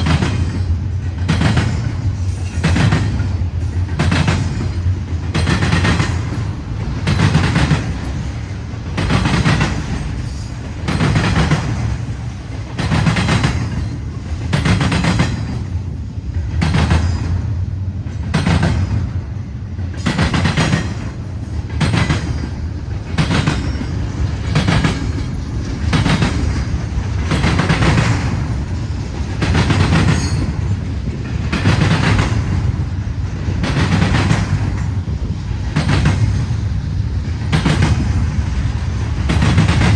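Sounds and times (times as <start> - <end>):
freight train rumbling: 0.0 - 39.9
wheels clacking over rail joints: 0.0 - 39.9.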